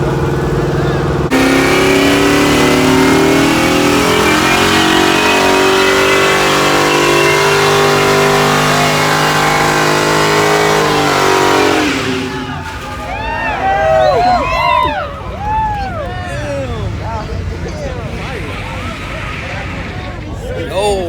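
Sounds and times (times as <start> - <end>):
car engine at high revs: 0.0 - 13.6, 16.4 - 20.6.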